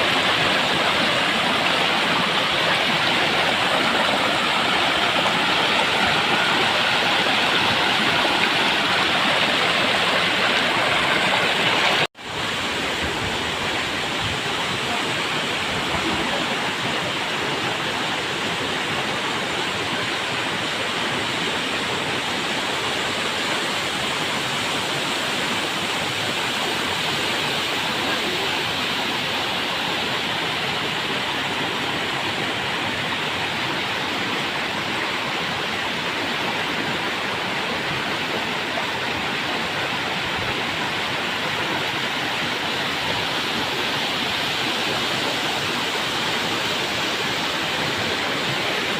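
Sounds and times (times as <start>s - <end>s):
river water rushing over rocks: 0.0s - 48.9s.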